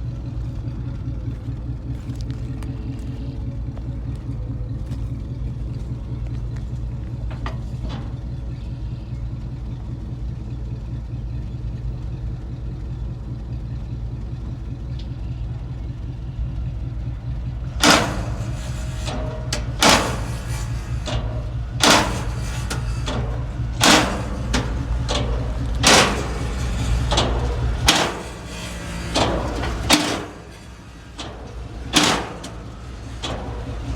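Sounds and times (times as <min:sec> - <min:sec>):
truck engine idling roughly: 0:00.0 - 0:33.9
loud bangs: 0:17.0 - 0:33.9.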